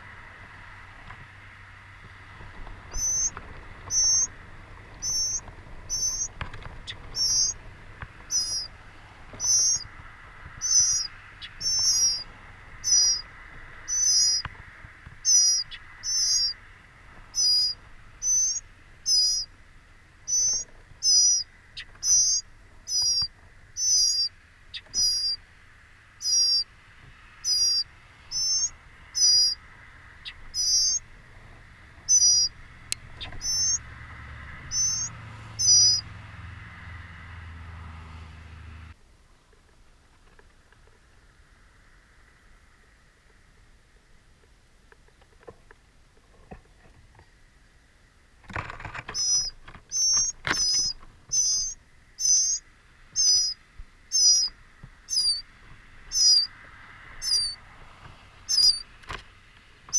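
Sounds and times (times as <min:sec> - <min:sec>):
faint high hum: 0:00.0 - 0:36.5.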